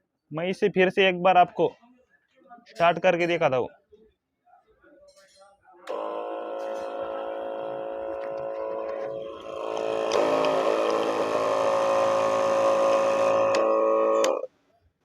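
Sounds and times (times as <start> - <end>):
sprayer pump motors humming: 5.9 - 14.5.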